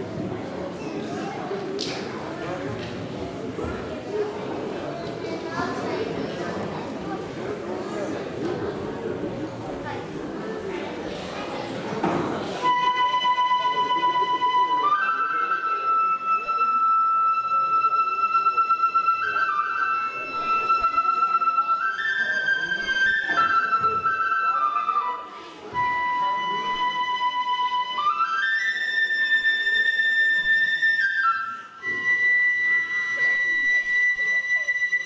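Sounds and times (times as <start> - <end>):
bamboo flute melody: 12.6 - 35.0.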